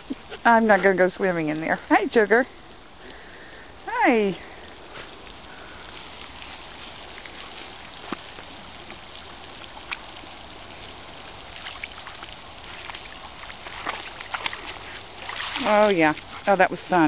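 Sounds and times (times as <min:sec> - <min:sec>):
creek water running: 0:00.0 - 0:17.0
water drips and small splashes: 0:00.0 - 0:17.0.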